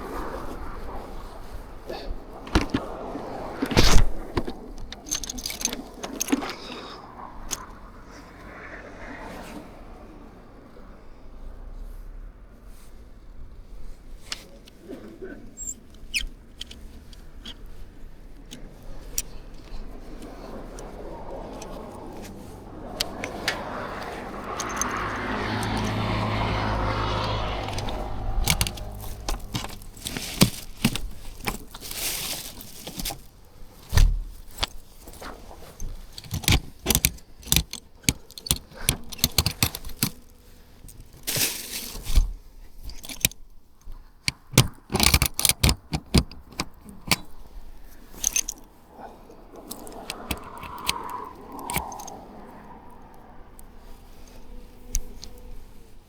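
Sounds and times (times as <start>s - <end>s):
engine hum: 0.0s - 56.0s
clicks and clinks of handled keys: 3.7s - 7.7s, 18.4s - 33.3s, 33.9s - 43.4s, 44.2s - 47.4s, 48.1s - 48.8s, 49.6s - 55.6s.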